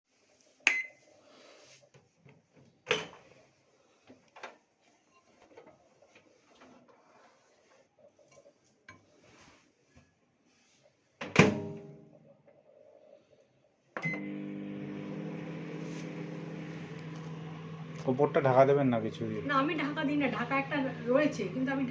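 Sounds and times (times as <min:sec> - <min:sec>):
microwave oven knocks and clatters: 0:11.2 - 0:11.9.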